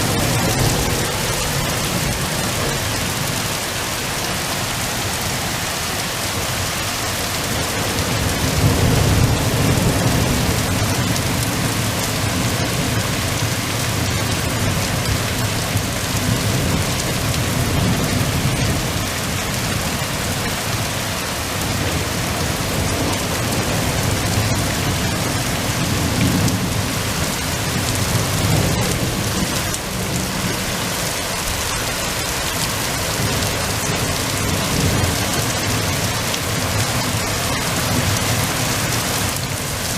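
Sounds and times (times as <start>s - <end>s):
rolling thunder: 0.0s - 20.9s
heavy rain hissing: 0.0s - 39.9s.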